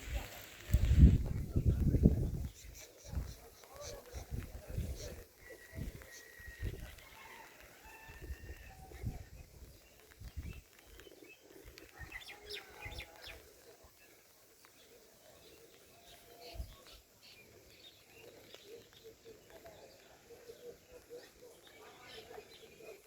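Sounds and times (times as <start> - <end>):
wind thumps on microphone: 0.0 - 3.4.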